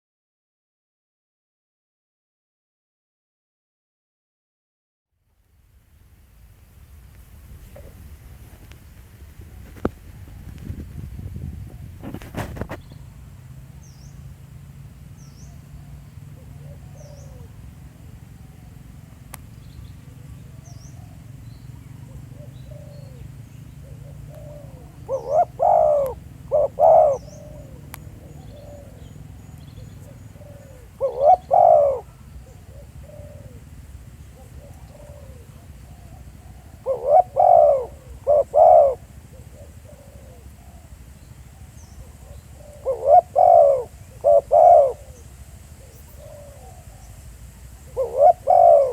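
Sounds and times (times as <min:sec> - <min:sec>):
dove cooing: 0:07.6 - 0:08.8, 0:15.4 - 0:48.9
small birds chirping: 0:09.4 - 0:14.4, 0:15.1 - 0:48.9
faint dove coos: 0:15.4 - 0:48.9.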